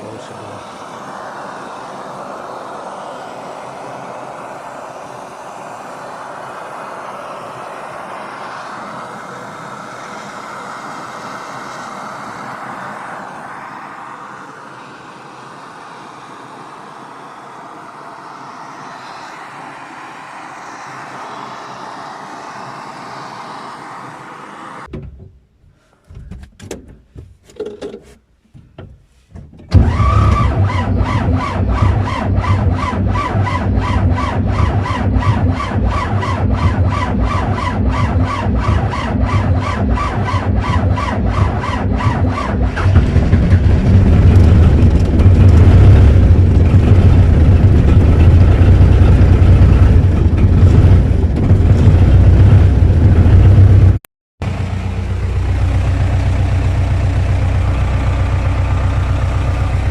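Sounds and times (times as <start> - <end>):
diesel engine running: 0.0 - 24.9, 29.7 - 59.9
steady rushing noise: 0.0 - 24.9, 32.6 - 54.0
electric starter cranking diesel: 29.7 - 59.9.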